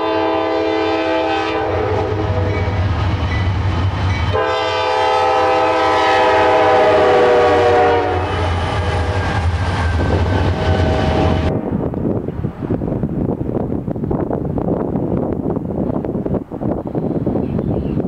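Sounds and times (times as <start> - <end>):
locomotive air horn: 0.0 - 2.7, 4.3 - 9.4, 10.2 - 11.5
passing train rumble: 0.0 - 18.0.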